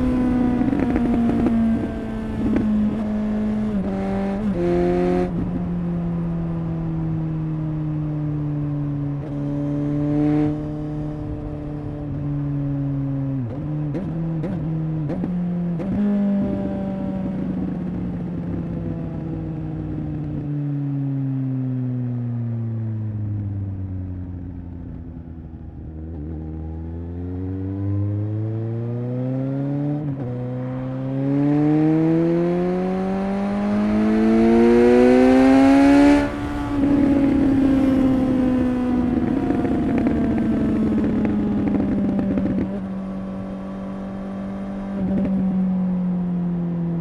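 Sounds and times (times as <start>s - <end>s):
motorcycle engine and exhaust: 0.0s - 47.0s.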